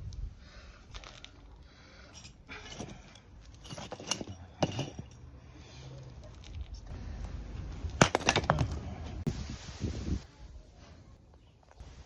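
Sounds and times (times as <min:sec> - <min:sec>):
firewood being chopped: 0:07.9 - 0:08.8.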